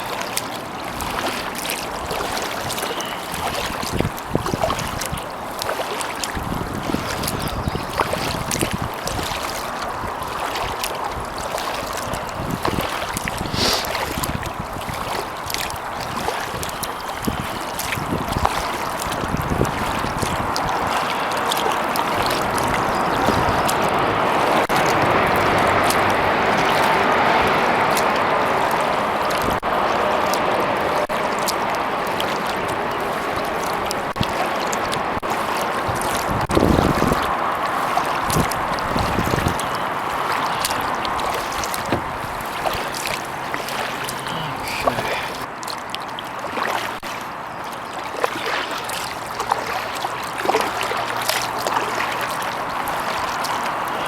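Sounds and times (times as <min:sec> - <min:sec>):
water splashing around kayak: 0:00.0 - 0:54.0
rushing hiss: 0:13.5 - 0:14.0.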